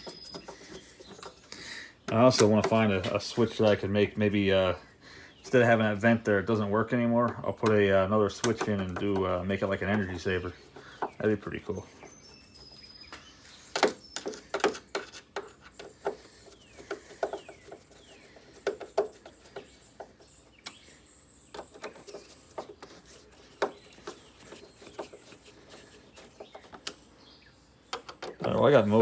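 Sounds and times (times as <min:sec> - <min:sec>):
faint bird chirps: 0:00.0 - 0:06.7, 0:08.6 - 0:29.0
clicks and knocks of parts: 0:13.1 - 0:17.8, 0:27.9 - 0:28.7.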